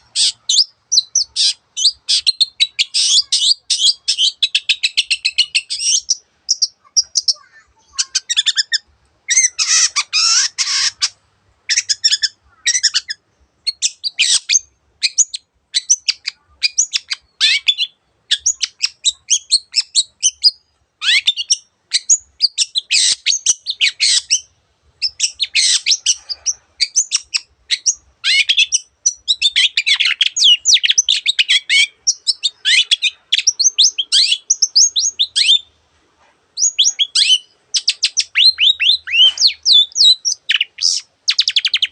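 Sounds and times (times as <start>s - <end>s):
bird chattering song: 0.0s - 35.7s, 36.6s - 41.9s.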